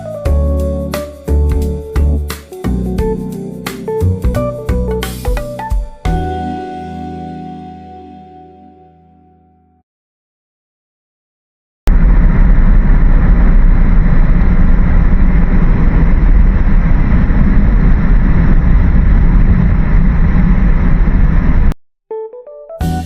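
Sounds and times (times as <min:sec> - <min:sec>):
loud steady rumbling noise: 0:11.9 - 0:21.8.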